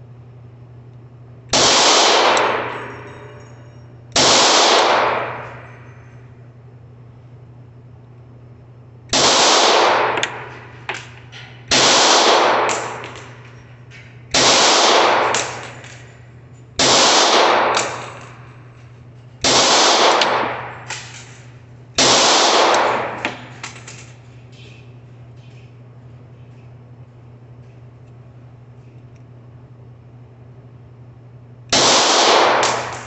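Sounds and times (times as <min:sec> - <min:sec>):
pistol shots: 0:01.5 - 0:03.1, 0:04.2 - 0:05.8, 0:09.1 - 0:13.7, 0:14.3 - 0:16.2, 0:16.8 - 0:18.6, 0:19.4 - 0:24.2, 0:31.7 - 0:33.0
small clinks: 0:02.7 - 0:04.1, 0:05.4 - 0:06.5, 0:15.4 - 0:16.8.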